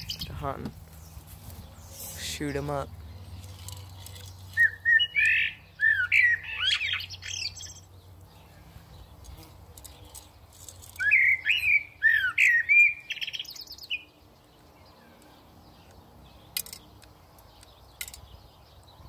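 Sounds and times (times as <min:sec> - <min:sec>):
bird chirps and squawks: 0:04.5 - 0:07.8.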